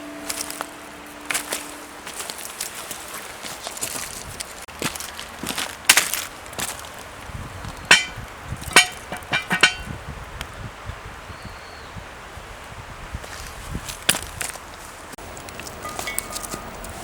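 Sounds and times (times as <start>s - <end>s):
handling and rustling: 0.0s - 10.0s, 13.2s - 17.0s
hard objects clinking: 7.9s - 9.9s, 15.2s - 17.0s.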